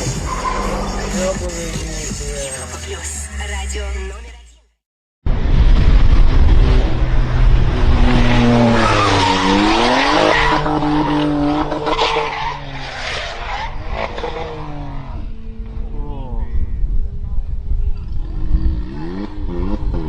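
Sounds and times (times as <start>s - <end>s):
tyres squealing and skidding: 0.0s - 1.3s, 8.6s - 14.7s.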